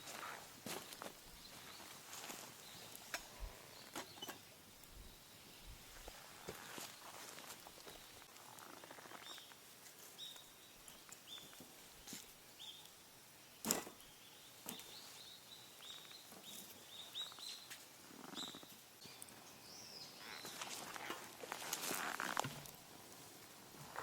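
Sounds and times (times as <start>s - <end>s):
small bird chirping: 2.6s - 11.6s, 12.6s - 21.2s.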